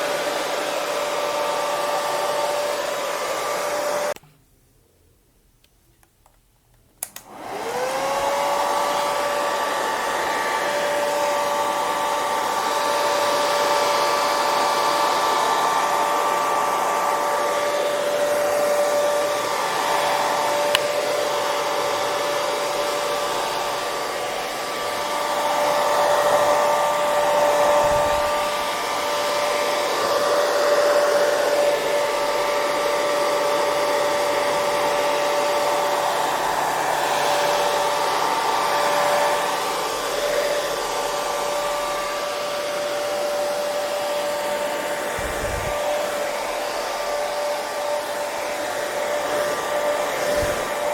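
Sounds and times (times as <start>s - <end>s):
hair dryer running: 0.0s - 4.2s, 7.0s - 50.9s
hair dryer switch click: 5.6s - 7.5s, 20.6s - 21.1s.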